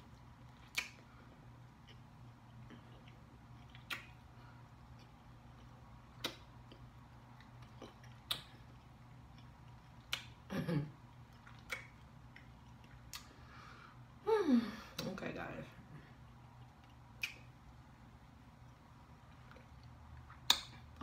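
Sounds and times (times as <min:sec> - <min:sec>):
person chewing food: 0:00.0 - 0:13.8, 0:16.1 - 0:21.0
wet lip-smacking clicks: 0:00.5 - 0:01.1, 0:02.6 - 0:04.3, 0:04.9 - 0:10.5, 0:11.3 - 0:13.4, 0:16.5 - 0:17.8, 0:18.6 - 0:20.8.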